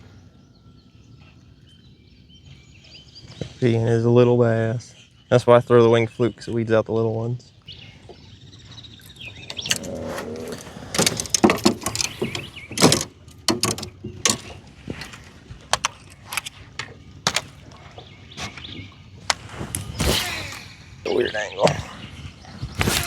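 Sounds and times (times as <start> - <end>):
sharp knocks and clicks: 9.4 - 17.8.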